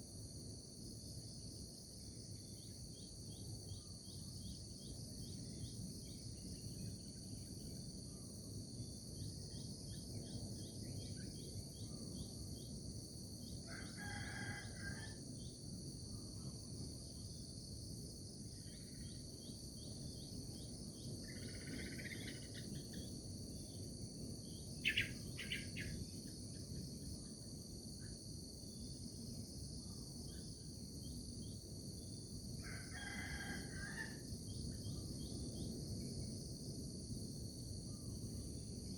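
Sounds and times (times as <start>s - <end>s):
insect chorus: 0.0s - 38.9s
rooster crowing: 13.7s - 15.2s, 32.6s - 34.3s.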